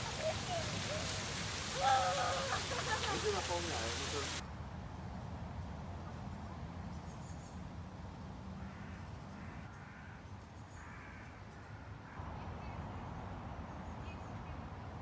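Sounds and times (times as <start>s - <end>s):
crow cawing: 0.0s - 4.4s.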